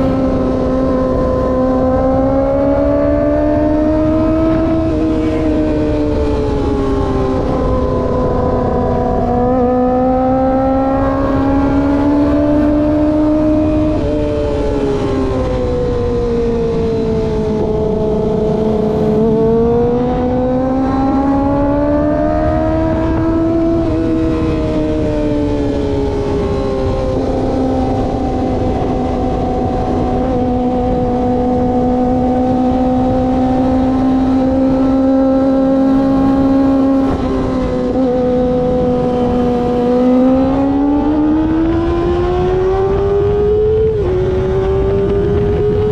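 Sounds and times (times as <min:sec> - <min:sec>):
motorcycle engine cruising: 0:00.0 - 0:45.9
wind and road rush: 0:00.0 - 0:45.9.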